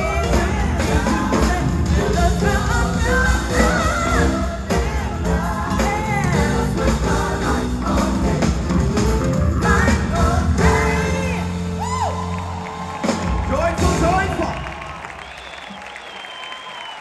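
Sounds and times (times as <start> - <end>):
person singing gospel: 0.0 - 8.7, 9.6 - 12.0
bass and drums: 0.0 - 15.1.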